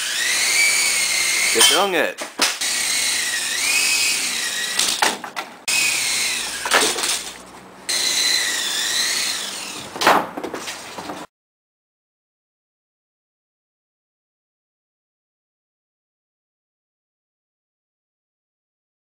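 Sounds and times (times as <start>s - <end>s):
electric toy helicopter rotors whining: 0.0s - 1.9s, 2.6s - 5.0s, 5.7s - 7.3s, 7.9s - 9.9s.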